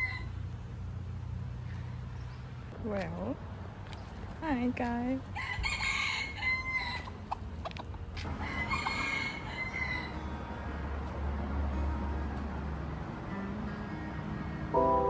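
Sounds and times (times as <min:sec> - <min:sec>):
rooster crowing: 0:00.0 - 0:00.4, 0:05.4 - 0:07.2, 0:08.2 - 0:10.3.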